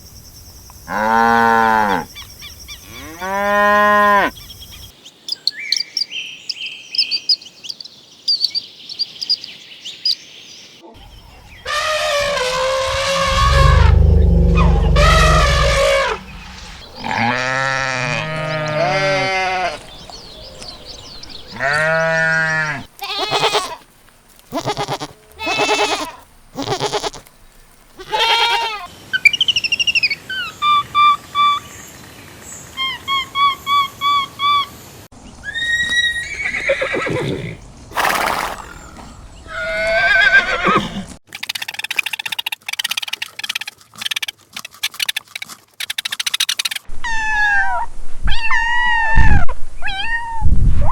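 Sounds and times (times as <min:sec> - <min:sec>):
farm animal calls: 0:11.1 - 0:19.9, 0:24.5 - 0:27.3, 0:35.4 - 0:41.1.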